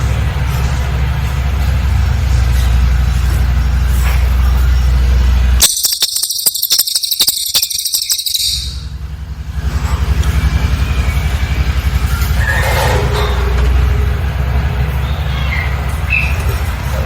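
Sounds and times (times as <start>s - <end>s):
low steady rumble: 0.0s - 17.0s
bird high-pitched trill: 5.6s - 9.0s
faint bird chirps: 5.6s - 9.0s.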